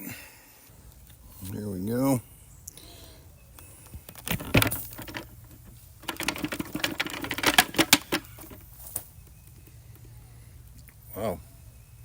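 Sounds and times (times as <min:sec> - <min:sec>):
vacuum dust bin clicks and rattles: 0:04.0 - 0:08.7.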